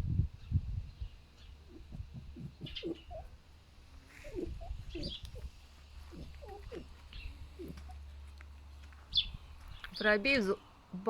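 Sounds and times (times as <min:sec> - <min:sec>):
foxes grunting: 0:01.6 - 0:03.4, 0:04.0 - 0:08.3.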